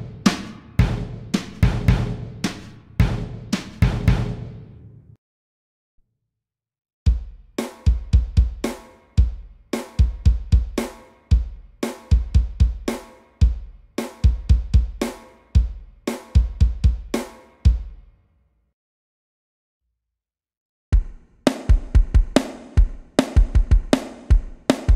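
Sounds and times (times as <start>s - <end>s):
bass drum strikes: 0.8s - 2.3s.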